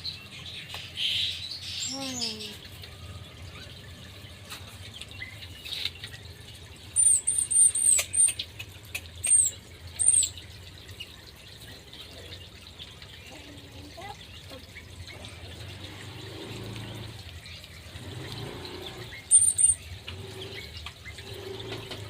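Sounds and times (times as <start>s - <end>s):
small bird high thin calls: 9.2s - 10.4s, 19.1s - 19.9s.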